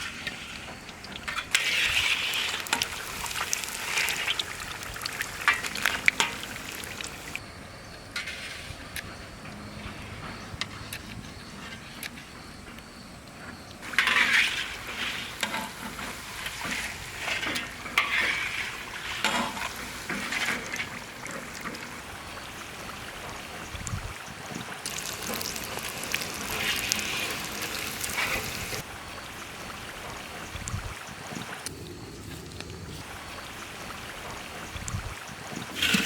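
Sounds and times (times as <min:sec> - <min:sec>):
spring rolls sizzling in oil: 0:00.0 - 0:07.4, 0:13.9 - 0:31.5
utensil scraping a pan: 0:13.8 - 0:21.5.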